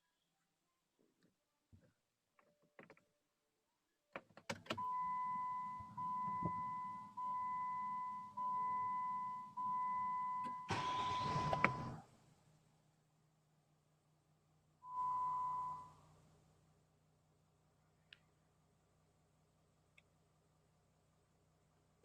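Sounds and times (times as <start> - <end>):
electronic dashboard chime: 4.8 - 11.9, 14.8 - 16.0
faint low engine idle: 4.8 - 14.9
engine starter cranking: 10.7 - 12.0.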